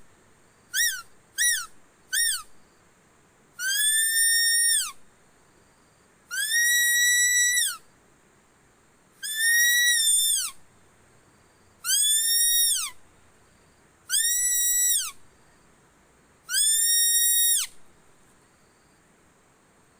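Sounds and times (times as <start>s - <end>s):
high whistle lure call: 0.7s - 2.5s, 3.6s - 5.0s, 6.3s - 7.8s, 9.2s - 10.6s, 11.8s - 13.0s, 14.1s - 15.2s, 16.5s - 17.8s.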